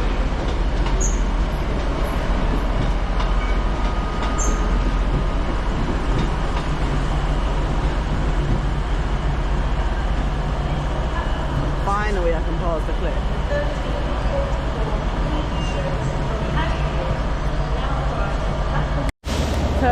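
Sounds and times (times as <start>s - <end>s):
train rumble: 0.0s - 19.9s
train wheel squeaks: 0.9s - 1.4s, 3.3s - 5.0s, 15.4s - 16.0s.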